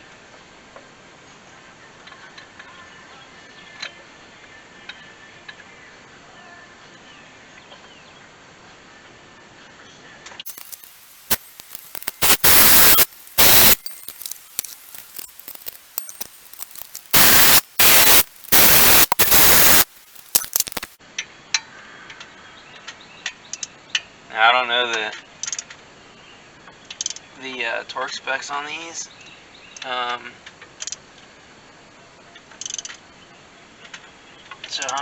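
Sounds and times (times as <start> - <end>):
clicks: 10.5 - 21.0.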